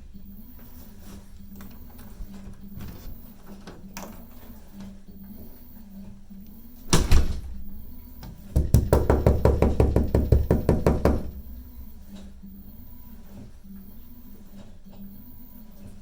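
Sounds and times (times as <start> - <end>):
rapid sharp knocks: 8.5 - 11.7.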